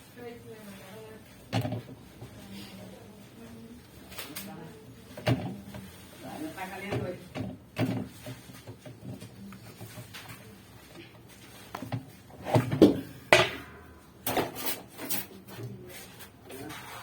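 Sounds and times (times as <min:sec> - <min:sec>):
objects knocking and clattering: 0:01.5 - 0:02.3, 0:06.9 - 0:15.2.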